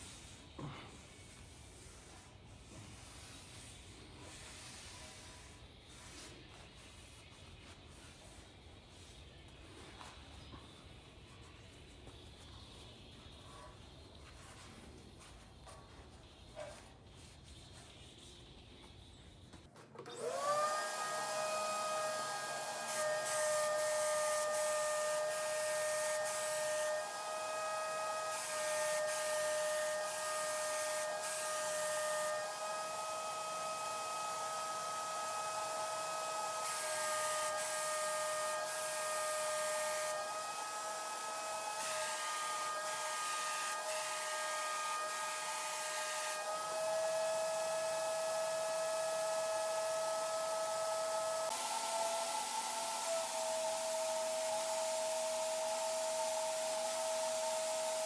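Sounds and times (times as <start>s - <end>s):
hiss: 0.0s - 15.4s, 20.4s - 58.0s
motor tool whining: 20.0s - 58.0s.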